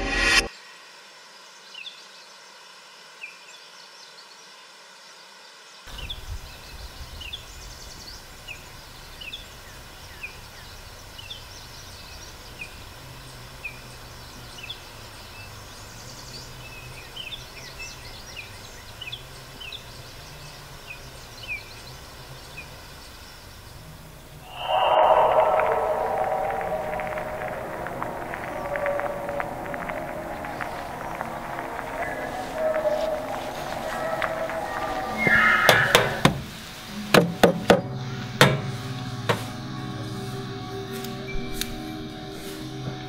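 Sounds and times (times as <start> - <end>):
small birds chirping: 1.4 - 36.9.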